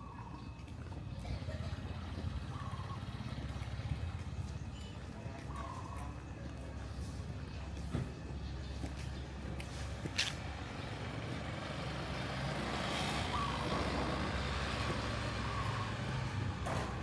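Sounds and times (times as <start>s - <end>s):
traffic engine rumble: 0.0s - 17.0s
vehicle passing: 9.2s - 17.0s.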